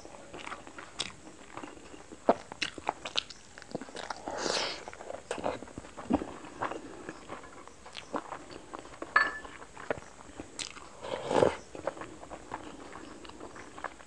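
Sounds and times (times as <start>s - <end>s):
chewing and wet mouth clicks: 0.3s - 4.3s, 7.8s - 8.9s, 9.8s - 10.9s.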